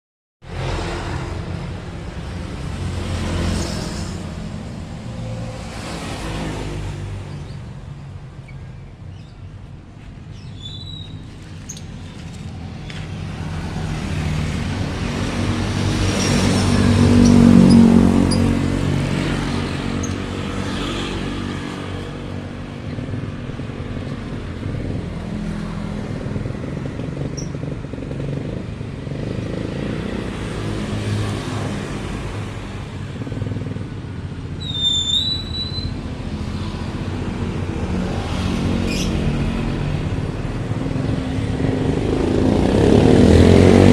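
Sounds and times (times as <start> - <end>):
high bird chirps: 10.3 - 12.0
vehicle engine passing by: 11.3 - 32.8, 36.2 - 43.9.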